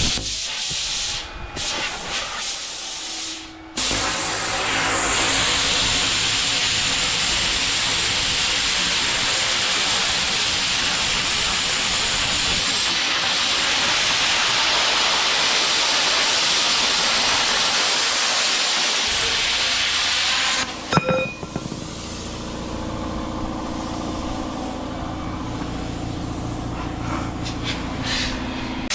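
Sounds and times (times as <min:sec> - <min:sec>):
welder hissing sizzle: 0:00.0 - 0:20.7.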